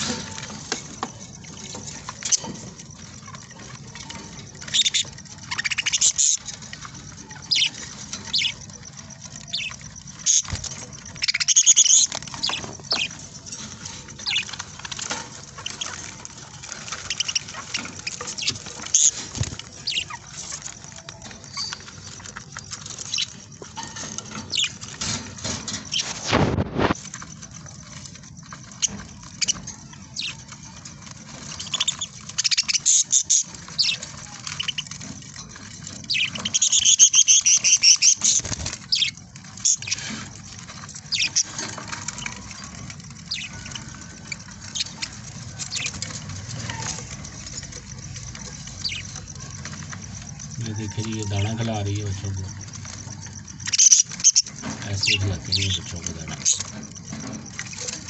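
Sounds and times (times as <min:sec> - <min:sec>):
budgerigars chirping: 0:04.1 - 0:23.4, 0:24.0 - 0:26.0, 0:31.3 - 0:35.2, 0:35.8 - 0:49.9, 0:53.6 - 0:58.0.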